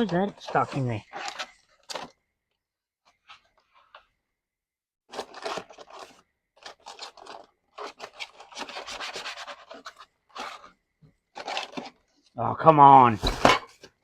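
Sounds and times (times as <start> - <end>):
cardboard scraping and rubbing: 0.0 - 2.2, 5.1 - 12.2.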